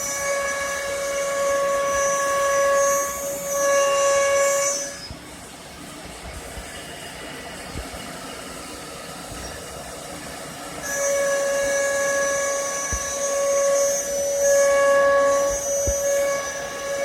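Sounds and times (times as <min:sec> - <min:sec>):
high-pitched router whine: 0:00.0 - 0:17.0
router spindle hissing: 0:10.7 - 0:17.0.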